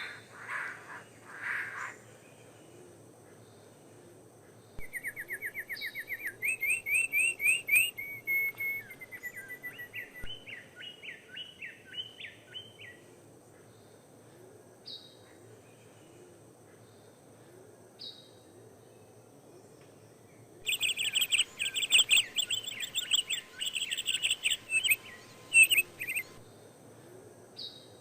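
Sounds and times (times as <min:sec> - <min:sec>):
songbird singing: 0:00.0 - 0:28.0
short high bird calls: 0:20.6 - 0:26.4.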